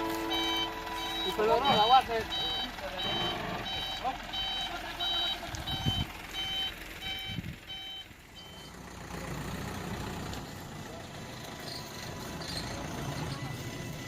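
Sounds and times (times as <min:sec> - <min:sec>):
truck reversing alarm beeping: 0:00.0 - 0:09.0, 0:11.7 - 0:14.0
truck engine running: 0:00.0 - 0:14.0.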